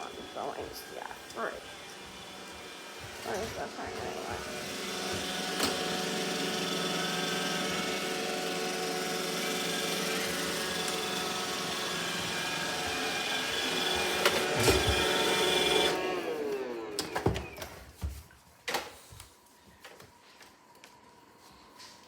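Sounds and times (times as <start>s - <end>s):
suction motor whining: 0.0s - 17.6s.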